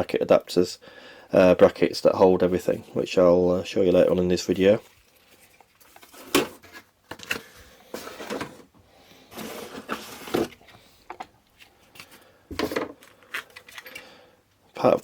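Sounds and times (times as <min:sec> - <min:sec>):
packaging rustling: 0:09.3 - 0:14.0.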